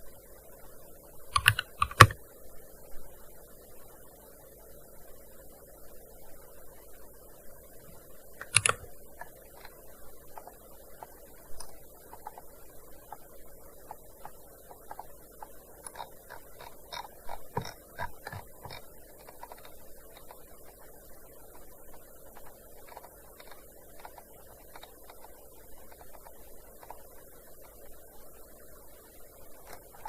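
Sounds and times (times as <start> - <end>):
keyboard key clicks: 1.4 - 2.2, 8.4 - 8.9.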